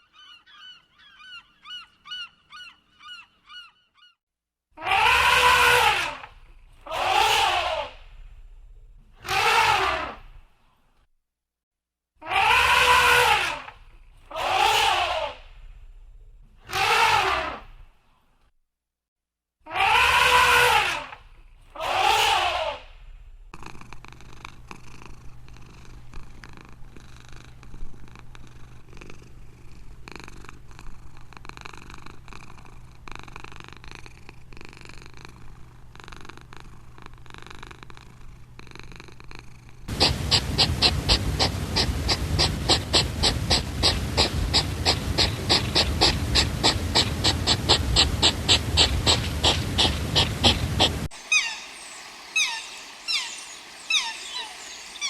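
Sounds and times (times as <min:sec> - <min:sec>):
cat purring: 0:23.5 - 0:51.1
rapid rhythmic snuffling: 0:39.9 - 0:51.2.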